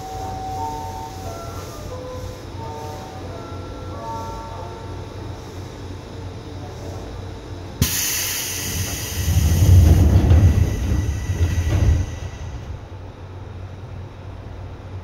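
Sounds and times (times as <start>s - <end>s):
loud rushing hiss: 0.0s - 13.4s
electric train running: 0.0s - 13.7s
heavy rumble: 8.5s - 13.6s.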